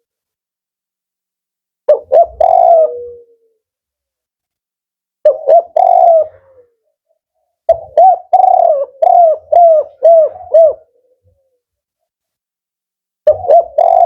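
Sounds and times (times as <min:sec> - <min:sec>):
dove cooing: 0:01.9 - 0:03.6, 0:05.2 - 0:07.0, 0:07.7 - 0:11.6, 0:13.3 - 0:14.0.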